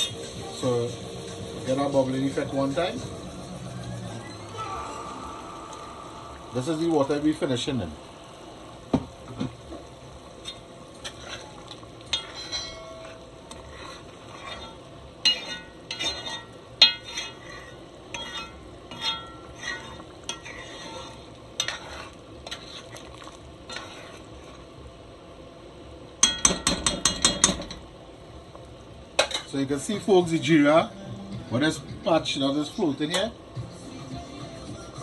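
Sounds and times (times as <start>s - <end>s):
curry bubbling: 1.6s - 26.1s
spoon scraping in pot: 10.4s - 24.6s.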